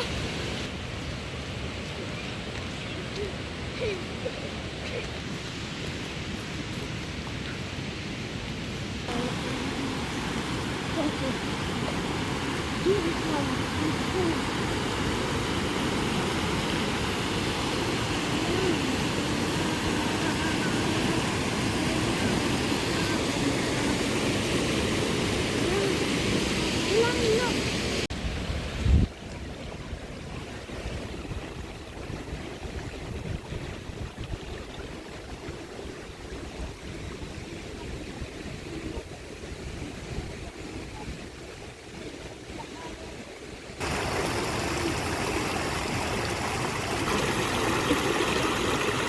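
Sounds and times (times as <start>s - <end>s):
steady rushing noise: 4.6s - 29.1s
faint distant voice: 18.2s - 24.4s
wind buffeting microphone: 28.1s - 49.0s.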